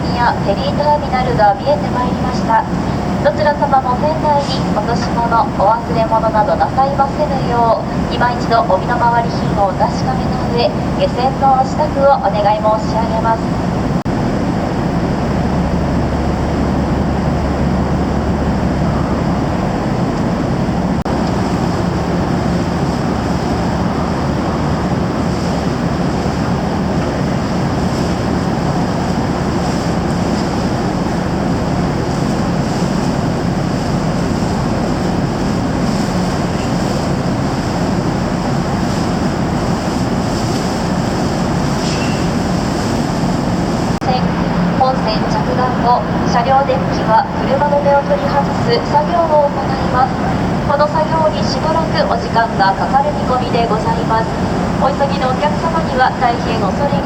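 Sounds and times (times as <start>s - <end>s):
ferry engine drone: 0.0s - 57.0s
wind: 0.0s - 57.0s
rushing water: 13.4s - 44.8s.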